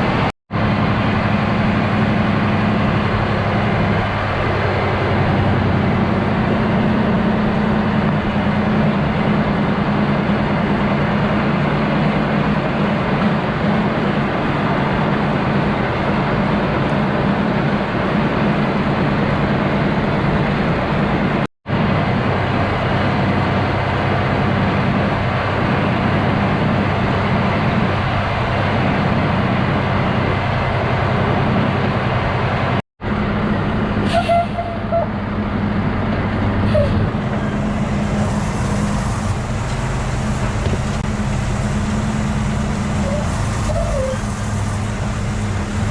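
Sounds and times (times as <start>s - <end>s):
diesel truck engine running: 0.0s - 45.9s
brief squeal: 34.0s - 35.2s, 36.6s - 37.1s, 43.0s - 44.4s.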